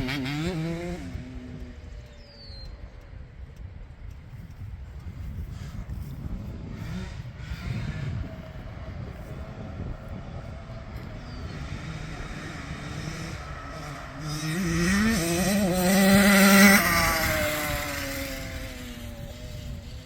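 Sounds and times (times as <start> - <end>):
dirt bike engine revving: 0.0 - 1.9, 6.4 - 20.0.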